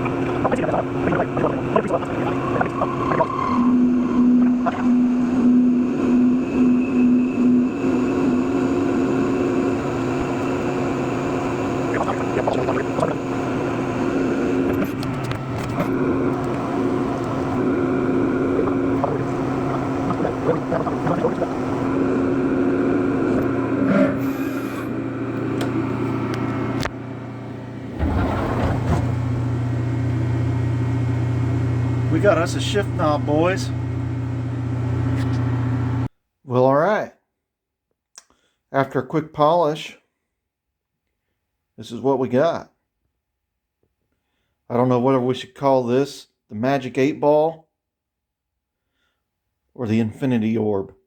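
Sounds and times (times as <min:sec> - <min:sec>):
machine tool motor hum: 0:00.0 - 0:36.1.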